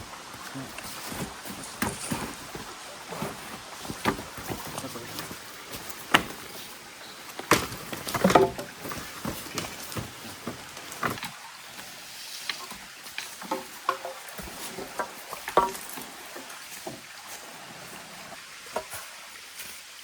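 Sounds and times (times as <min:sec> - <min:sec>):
faint steady hiss: 0:00.0 - 0:20.0
knocks and clatter: 0:07.4 - 0:11.4.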